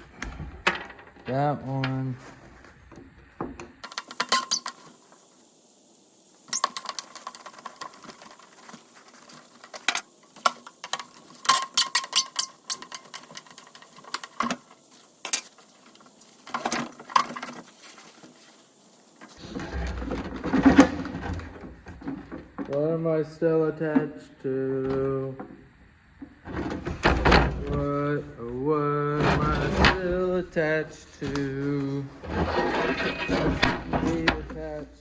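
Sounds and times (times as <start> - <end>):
hand tools and plastic clicking: 2.9 - 5.3, 6.4 - 22.9.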